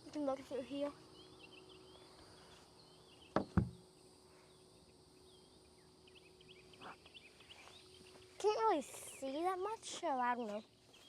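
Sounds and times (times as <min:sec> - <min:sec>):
insect hum: 0:00.0 - 0:11.0
small birds chirping: 0:00.0 - 0:11.0
sharp knocks: 0:03.3 - 0:03.8.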